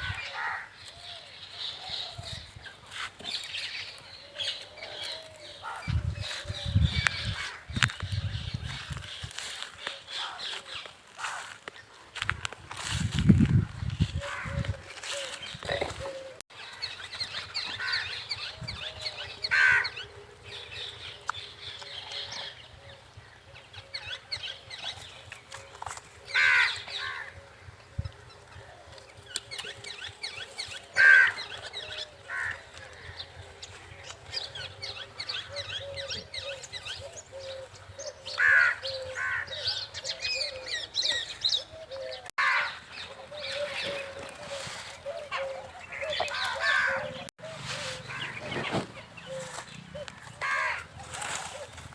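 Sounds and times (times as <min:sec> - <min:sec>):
flock of birds chirping: 0:00.0 - 0:51.9
harsh bird calls: 0:14.0 - 0:51.9.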